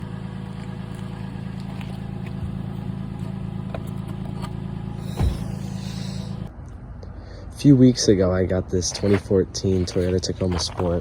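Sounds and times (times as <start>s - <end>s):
pickup truck engine idling: 0.0s - 6.5s
loud thump: 5.0s - 6.0s.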